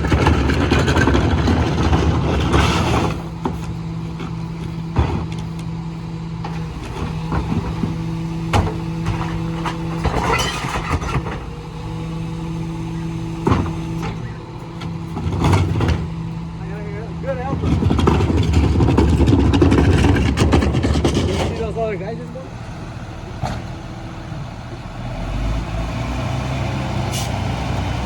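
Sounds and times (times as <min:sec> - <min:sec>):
garbage truck humming: 0:00.0 - 0:28.0
sharp knocks and clanks: 0:06.4 - 0:11.5, 0:17.2 - 0:22.1.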